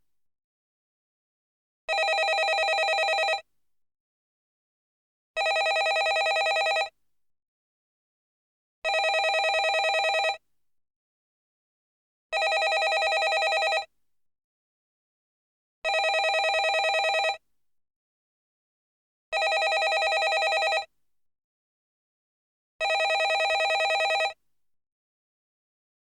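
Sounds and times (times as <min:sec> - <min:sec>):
landline telephone ringing: 0:01.9 - 0:03.4, 0:05.4 - 0:06.9, 0:08.9 - 0:10.4, 0:12.4 - 0:13.9, 0:15.9 - 0:17.4, 0:19.4 - 0:20.9, 0:22.8 - 0:24.4.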